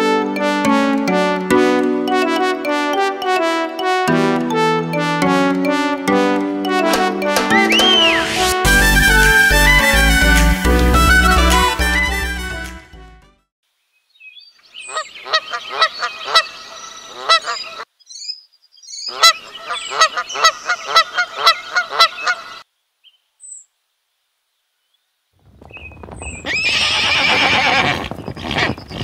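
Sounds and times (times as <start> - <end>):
waterfowl honking: 14.9 - 17.8, 19.1 - 22.6
horse whinny: 26.4 - 28.8.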